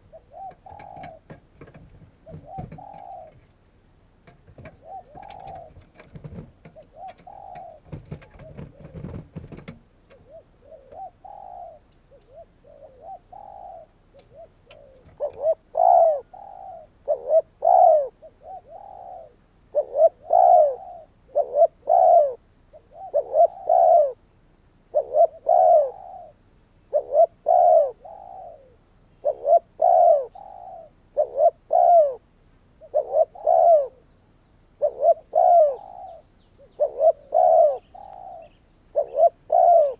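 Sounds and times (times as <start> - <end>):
dove cooing: 0.0 - 3.6, 4.2 - 24.2, 24.9 - 34.1, 34.8 - 39.9
low thumps or rustles: 0.4 - 11.0.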